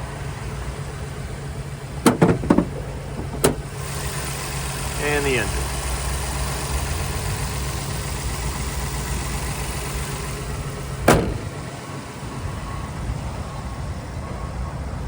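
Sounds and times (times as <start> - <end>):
truck engine idling: 0.0 - 15.0
sharp thump: 2.0 - 3.7, 11.0 - 11.6.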